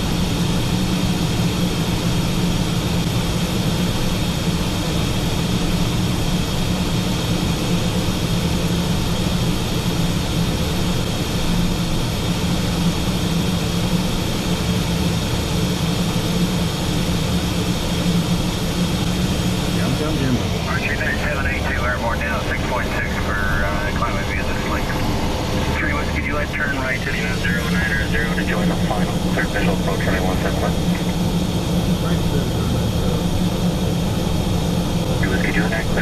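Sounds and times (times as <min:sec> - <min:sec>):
turbofan engines droning: 0:00.0 - 0:36.0
steady high whine: 0:00.1 - 0:36.0
jet cockpit noise: 0:12.9 - 0:36.0.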